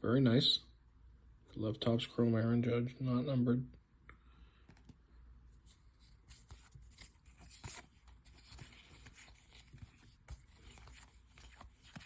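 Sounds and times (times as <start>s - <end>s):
trading cards rustling and clicking: 5.7s - 12.0s.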